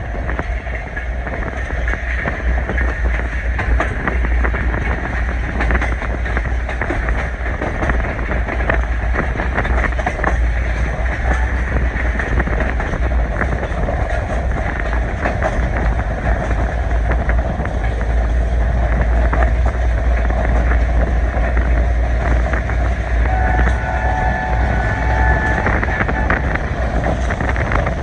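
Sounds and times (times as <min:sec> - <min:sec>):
train rumble: 0:00.0 - 0:28.0
wheels clicking on track: 0:00.0 - 0:28.0
wind buffeting: 0:00.0 - 0:28.0
faint wavering squeal: 0:23.2 - 0:26.9.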